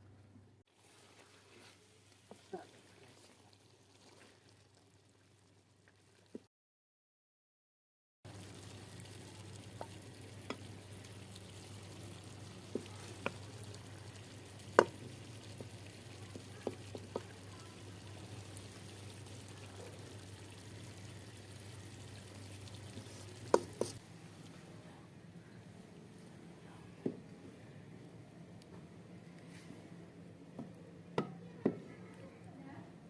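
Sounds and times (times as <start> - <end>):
curry sizzling in a pot: 0.7 - 6.5, 8.3 - 24.2
spoon knocking against pot: 14.7 - 15.0.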